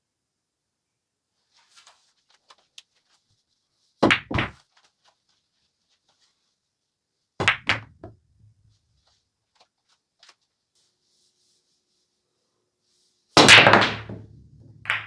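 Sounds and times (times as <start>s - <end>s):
pool balls clacking: 7.4s - 8.2s, 13.4s - 15.0s
ball rolling rumble: 13.7s - 15.0s.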